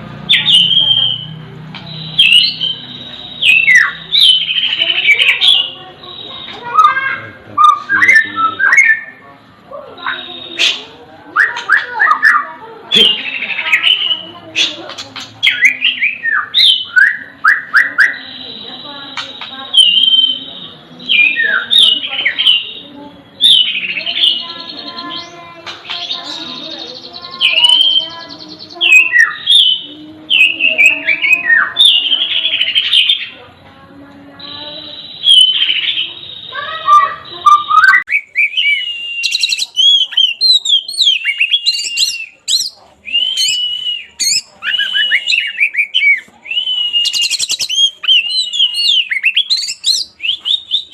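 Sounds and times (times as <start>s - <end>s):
birds singing and calling: 0.0s - 50.9s
songbirds whistling downward notes: 0.3s - 5.7s, 35.0s - 50.9s
rapid buzzy bird trill: 46.9s - 50.9s.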